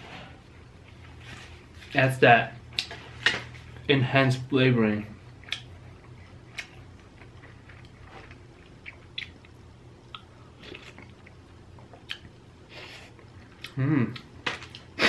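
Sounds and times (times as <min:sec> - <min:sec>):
mouth clicks and smacks: 0:08.8 - 0:11.3, 0:11.9 - 0:12.4.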